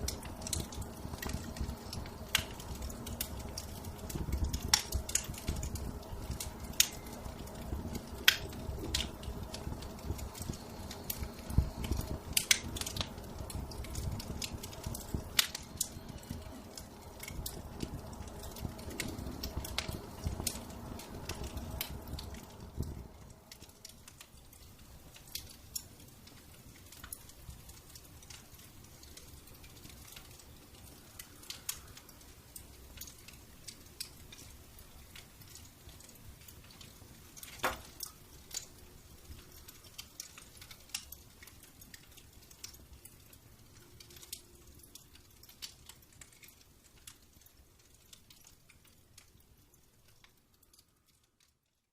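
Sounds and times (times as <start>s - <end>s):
low steady rumble: 0.0s - 25.6s
wood fire crackling and popping: 0.0s - 51.9s.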